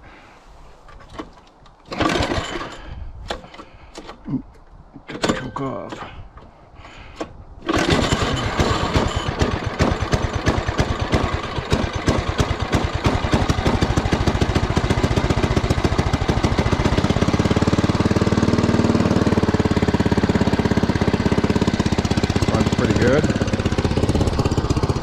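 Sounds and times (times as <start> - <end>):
small engine running: 7.6 - 25.0.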